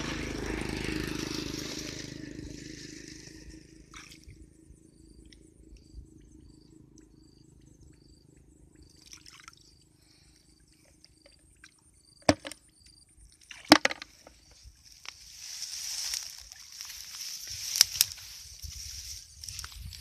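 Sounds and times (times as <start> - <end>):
faint steady hum: 1.6 - 20.0
water splashing: 9.0 - 9.8.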